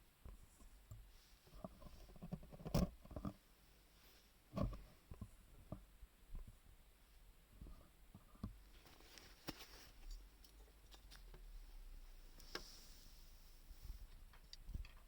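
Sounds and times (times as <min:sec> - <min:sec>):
faint hiss: 0:11.4 - 0:14.8.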